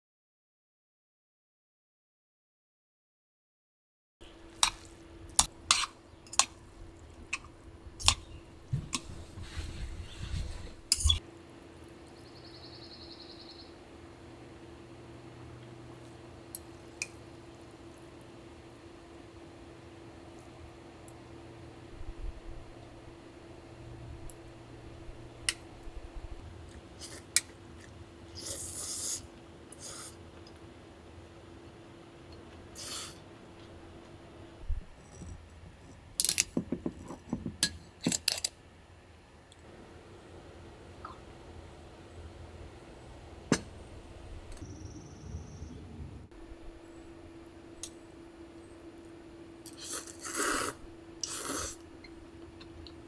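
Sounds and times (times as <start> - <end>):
camp dishes and utensils clinking: 4.2 - 12.4, 34.8 - 38.6, 43.4 - 44.7
steady low hum: 4.2 - 28.4, 29.2 - 53.0
rustling scraping: 8.7 - 11.2.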